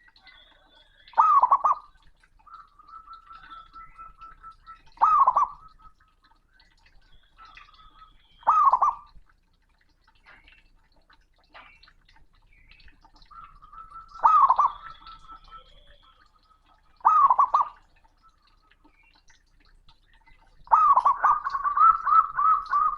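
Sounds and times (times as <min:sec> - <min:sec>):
dove cooing loudly: 0:01.2 - 0:06.0, 0:07.4 - 0:09.1, 0:13.3 - 0:16.0, 0:17.0 - 0:18.2, 0:20.7 - 0:22.9.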